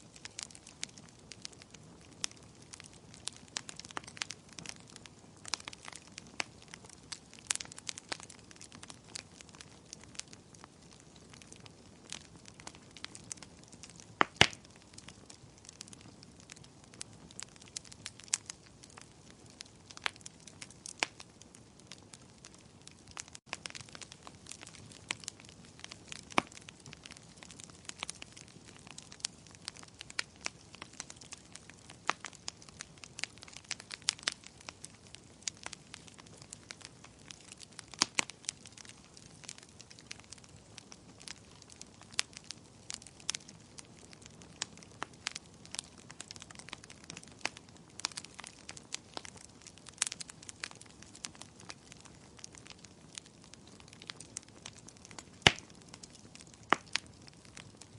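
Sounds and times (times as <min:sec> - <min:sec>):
fire crackling and popping: 0:00.0 - 0:57.9
soft steady hiss: 0:00.0 - 0:57.9.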